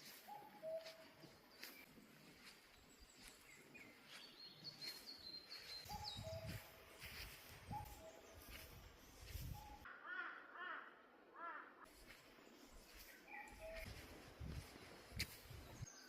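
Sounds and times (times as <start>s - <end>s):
high thin bird chirps: 0.0s - 2.5s, 3.2s - 9.9s, 12.9s - 16.0s.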